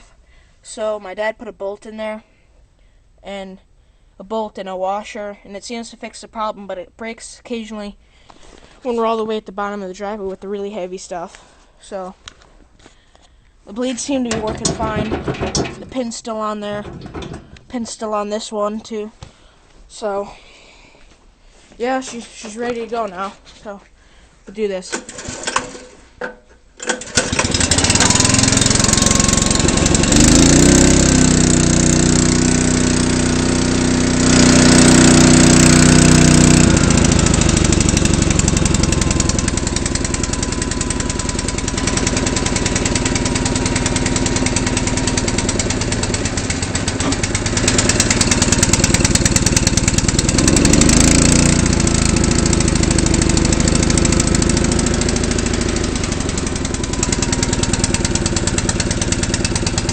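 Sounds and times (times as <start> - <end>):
snowblower engine starting and running: 13.9 - 17.8, 24.9 - 59.9.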